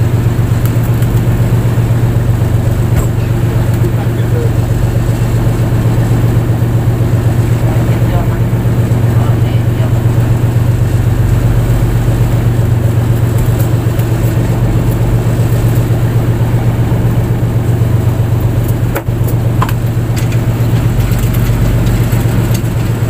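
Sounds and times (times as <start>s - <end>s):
boat engine humming: 0.0s - 23.0s.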